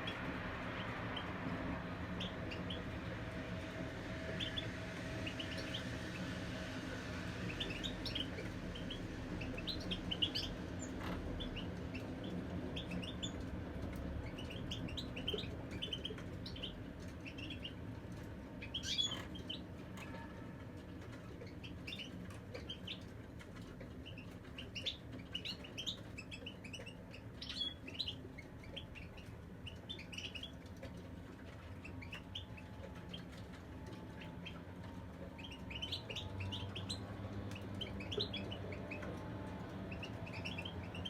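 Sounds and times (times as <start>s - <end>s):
finches chirping and twittering: 4.2s - 6.2s, 7.4s - 13.4s, 14.2s - 17.8s, 18.6s - 19.6s, 24.0s - 30.6s, 35.4s - 41.0s.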